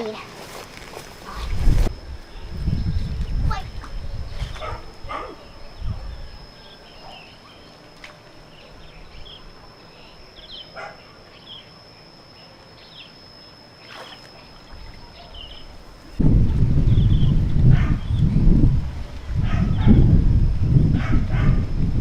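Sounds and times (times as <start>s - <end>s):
insect drone: 0.0s - 22.0s
small birds chirping: 2.3s - 15.8s.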